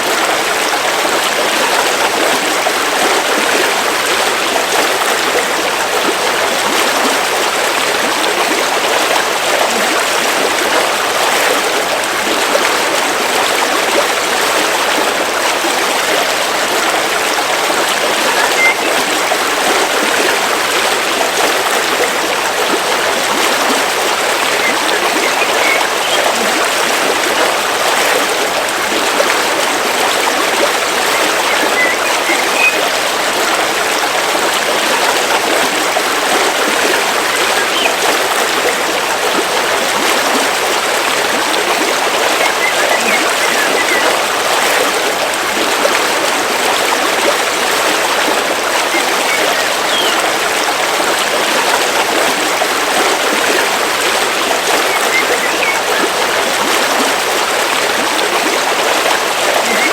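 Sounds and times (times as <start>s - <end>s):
river water flowing: 0.0s - 59.9s
faint bird chirps: 18.3s - 19.3s, 24.5s - 26.4s, 31.0s - 32.9s, 37.6s - 38.0s, 42.4s - 44.1s, 48.9s - 50.2s, 54.8s - 56.0s.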